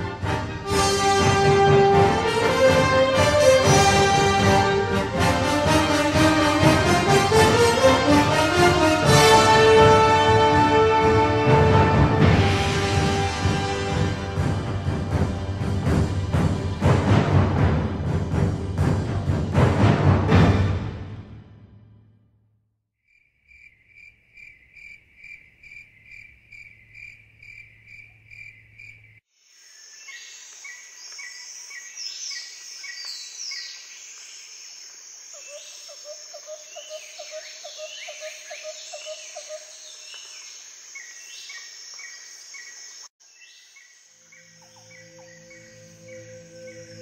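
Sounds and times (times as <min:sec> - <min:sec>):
insect chirping in pulses: 0:23.1 - 0:47.0
steady insect buzz: 0:23.1 - 0:47.0
chorus of birds calling: 0:35.4 - 0:42.8, 0:43.6 - 0:47.0
music with ringing bowl-like tones: 0:44.2 - 0:47.0.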